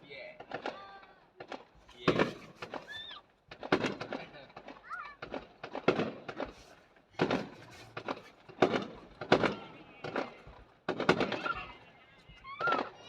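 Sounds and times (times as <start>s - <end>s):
fireworks booming: 3.5s - 11.8s.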